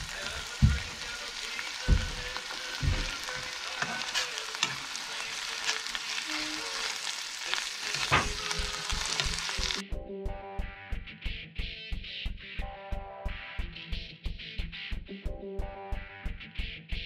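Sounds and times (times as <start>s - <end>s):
food sizzling in a pan: 0.0s - 9.8s.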